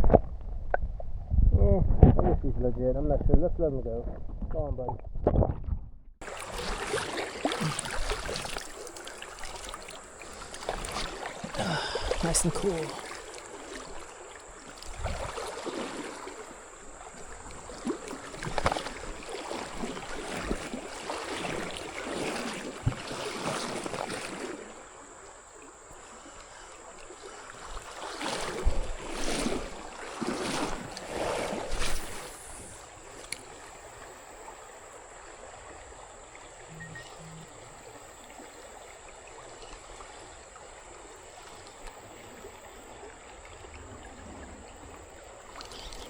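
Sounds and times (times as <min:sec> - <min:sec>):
creek rushing: 0:06.2 - 0:25.1
kayak paddle splashing: 0:06.2 - 0:46.0.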